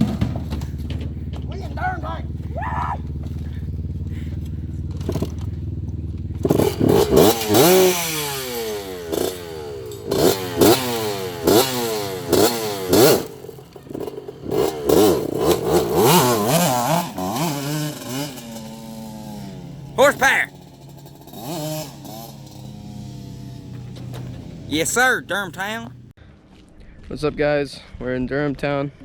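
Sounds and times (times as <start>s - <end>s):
clatter: 0.0s - 1.6s, 3.2s - 7.6s
vehicle engine revving: 0.0s - 13.4s.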